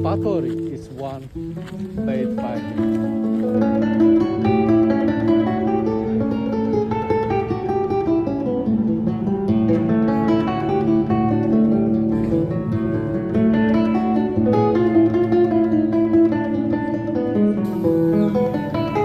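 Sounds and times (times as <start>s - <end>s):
acoustic guitar plucked and strummed: 0.0s - 19.0s
held low note: 17.6s - 19.0s.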